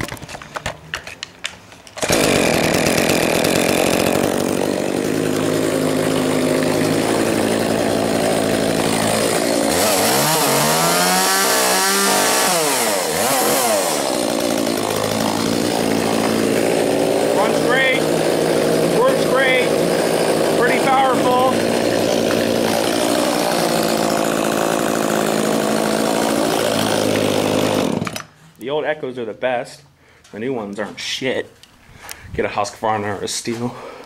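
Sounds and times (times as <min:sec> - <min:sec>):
chainsaw starting and idling: 0:01.7 - 0:28.4
chainsaw revving: 0:02.0 - 0:28.3.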